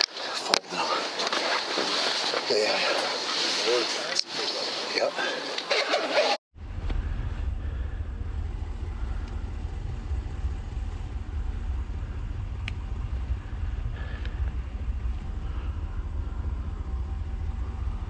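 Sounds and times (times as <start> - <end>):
vehicle driving rumble: 6.6 - 18.0.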